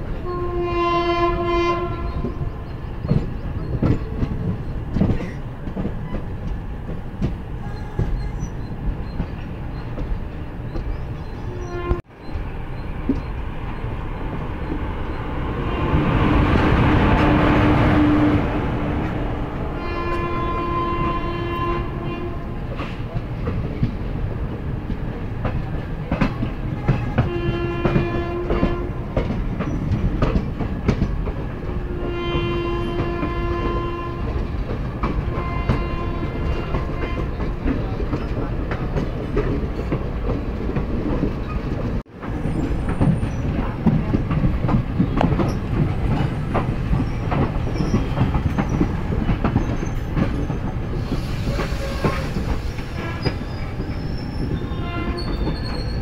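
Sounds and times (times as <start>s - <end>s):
train horn: 0.2s - 2.4s, 11.5s - 12.0s, 16.2s - 18.6s, 19.8s - 22.7s, 26.8s - 29.2s, 31.8s - 34.4s, 35.3s - 37.5s, 51.2s - 53.6s, 54.5s - 55.6s
train wheels clacking: 2.1s - 11.4s, 22.7s - 56.0s.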